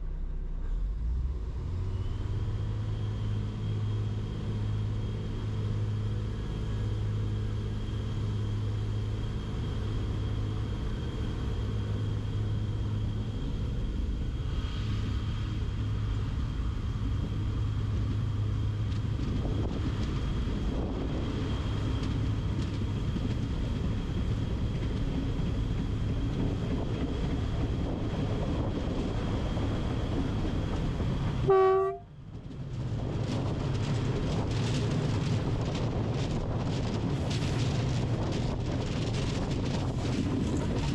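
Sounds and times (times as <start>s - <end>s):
train humming: 0.0s - 40.9s
train horn toot: 31.4s - 32.1s.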